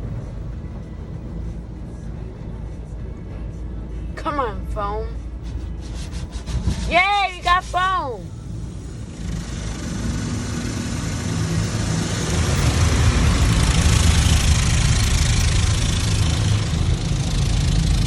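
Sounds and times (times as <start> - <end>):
car wash equipment rumbling: 0.0 - 3.2, 4.1 - 18.0.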